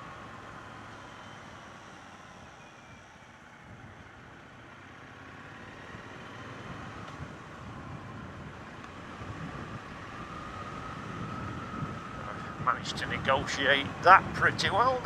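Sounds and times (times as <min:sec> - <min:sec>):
wind noise: 0:06.7 - 0:15.0.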